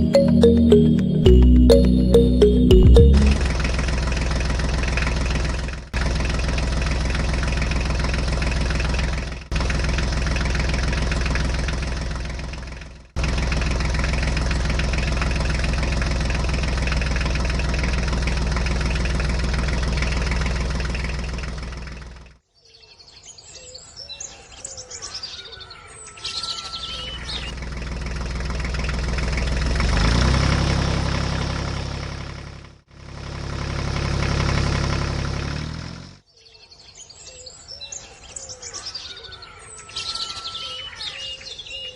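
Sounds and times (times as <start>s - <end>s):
tractor engine idling: 3.1s - 22.4s, 27.5s - 35.9s
birds chirping: 22.4s - 27.6s, 36.3s - 41.9s.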